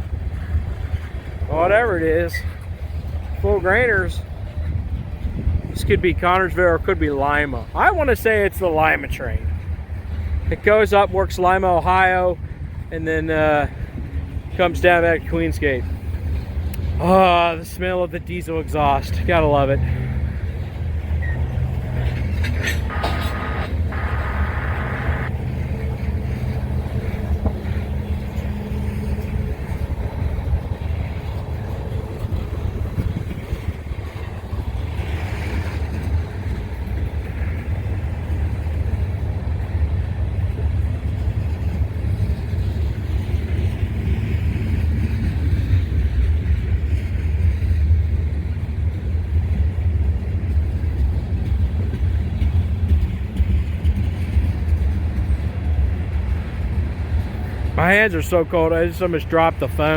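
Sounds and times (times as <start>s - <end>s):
locomotive drone: 19.9s - 35.1s.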